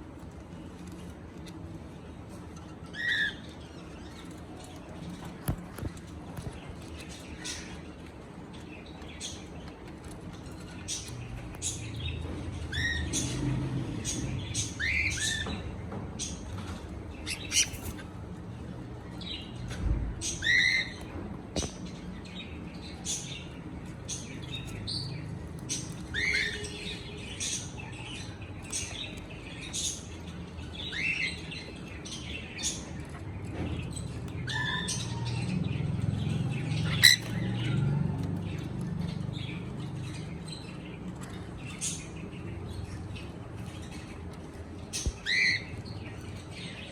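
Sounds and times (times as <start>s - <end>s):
cockatiel chirping: 36.9s - 37.3s.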